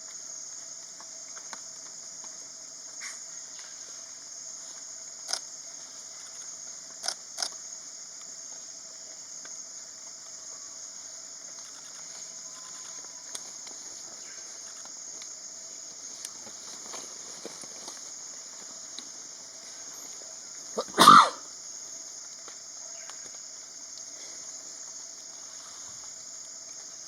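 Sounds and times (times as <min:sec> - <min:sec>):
insect drone: 0:00.0 - 0:27.0.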